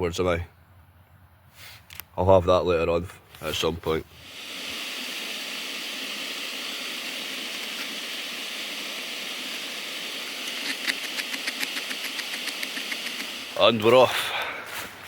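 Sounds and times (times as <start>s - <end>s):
gas stove burner hissing: 4.1s - 14.1s.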